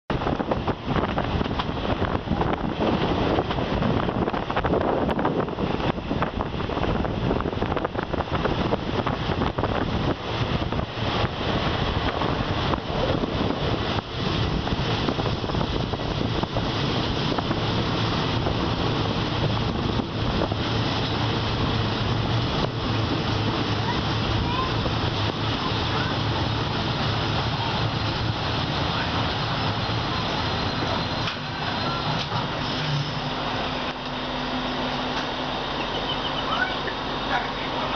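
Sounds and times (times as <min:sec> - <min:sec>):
wind rushing over microphone: 0:00.1 - 0:36.0
train running noise: 0:00.1 - 0:37.9
wheels clicking over rails: 0:28.9 - 0:33.0.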